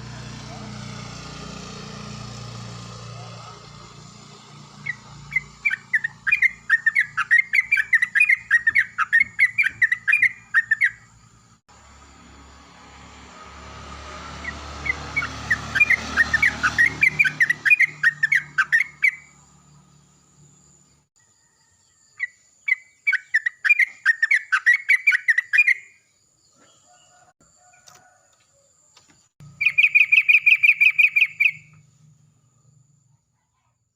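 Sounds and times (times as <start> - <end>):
bird chirping and trilling: 4.8 - 11.3, 14.4 - 19.4, 22.1 - 27.1, 29.4 - 31.8.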